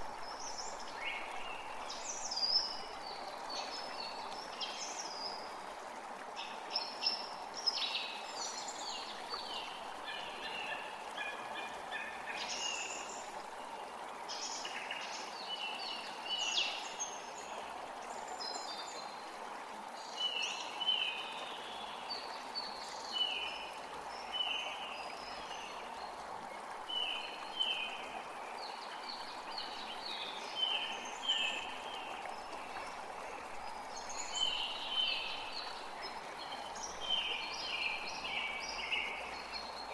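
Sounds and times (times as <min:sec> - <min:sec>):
creek running: 0:00.0 - 0:39.9
songbirds singing: 0:20.0 - 0:39.9.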